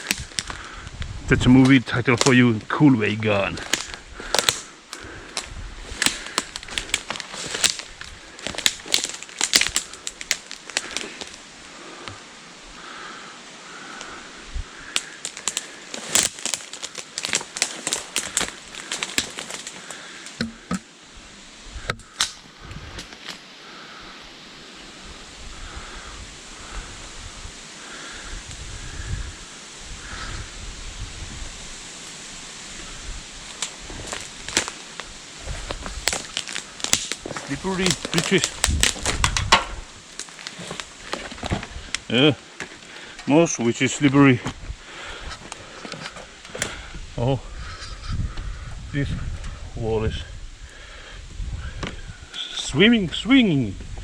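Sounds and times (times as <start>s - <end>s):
footsteps crunching on debris: 0.0s - 0.7s, 1.4s - 11.5s, 14.8s - 20.9s, 33.4s - 46.9s
wind buffeting microphone: 0.0s - 2.6s, 5.0s - 8.8s, 25.0s - 31.8s, 32.7s - 36.2s, 37.2s - 40.1s, 44.2s - 45.5s, 46.3s - 54.0s.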